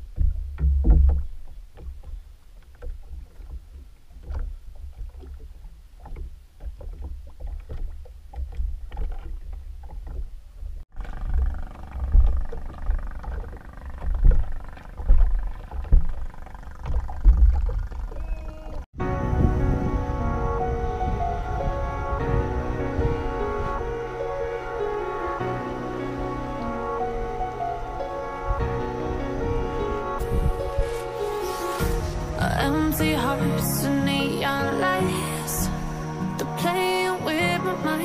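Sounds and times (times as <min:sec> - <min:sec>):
water slapping boat hull: 0:00.0 - 0:19.0
wind buffeting microphone: 0:09.8 - 0:33.6
music: 0:19.0 - 0:38.0.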